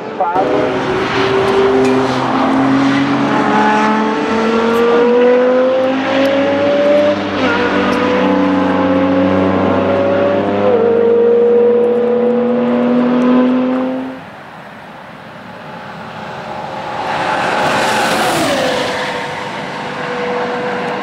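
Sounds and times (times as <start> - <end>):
car passing by: 0.4 - 14.2, 15.6 - 21.0
race car engine accelerating: 0.4 - 14.2.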